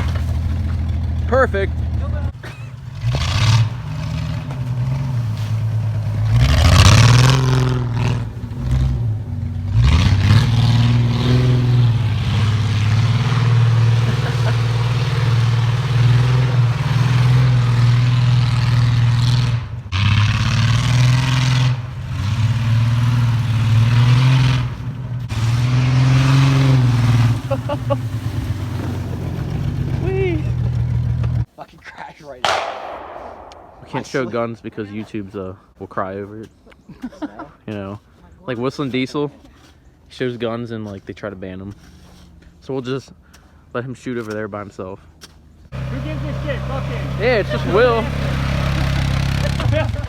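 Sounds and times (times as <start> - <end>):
truck engine revving: 0.0 - 31.5, 45.7 - 50.0.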